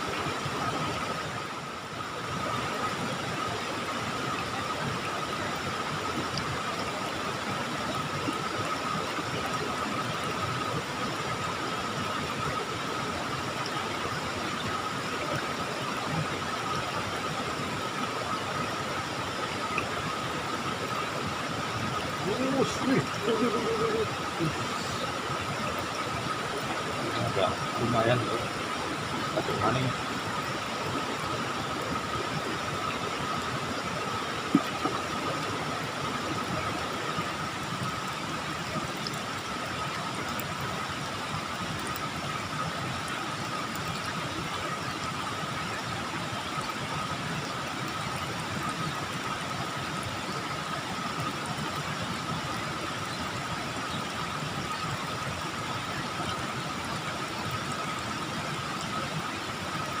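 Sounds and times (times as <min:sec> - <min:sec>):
constant high-pitched tone: 0:00.0 - 1:00.0.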